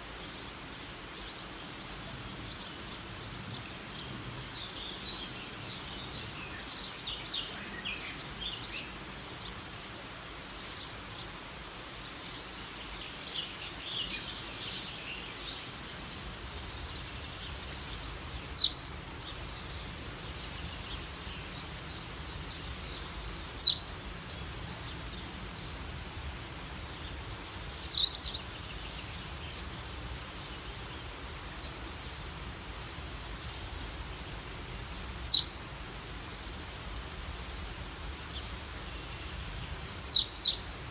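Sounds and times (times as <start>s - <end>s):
steady outdoor background hiss: 0.0s - 40.9s
soft high bird chirps: 22.1s - 24.2s, 27.8s - 29.0s, 35.2s - 36.0s, 40.1s - 40.7s.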